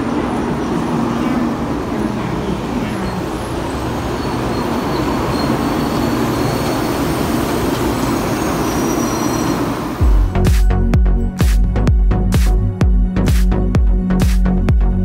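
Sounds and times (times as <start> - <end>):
train wheels rumbling and hissing: 0.0 - 10.5.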